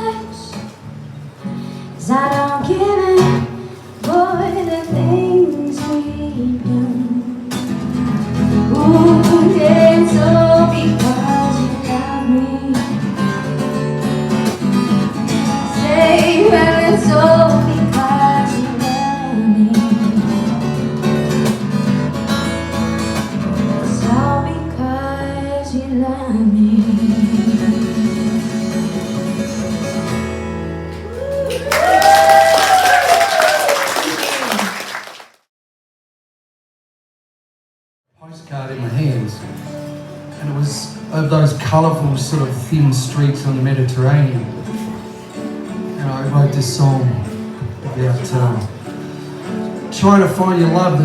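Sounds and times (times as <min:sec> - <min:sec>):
acoustic guitar strumming: 0:00.0 - 0:31.2, 0:38.5 - 0:51.0
person singing: 0:08.7 - 0:13.0.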